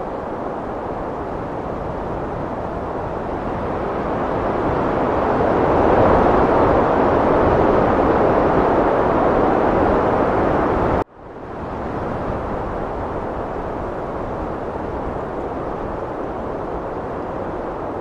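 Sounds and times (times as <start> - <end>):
heavy wind blowing: 0.0 - 18.0.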